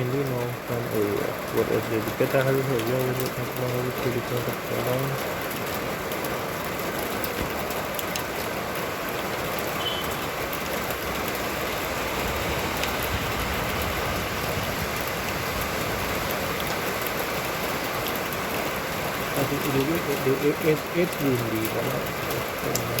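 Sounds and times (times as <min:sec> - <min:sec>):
rain drop ticks: 0:00.0 - 0:23.0
rain falling: 0:00.0 - 0:23.0
wind buffeting: 0:11.6 - 0:17.0.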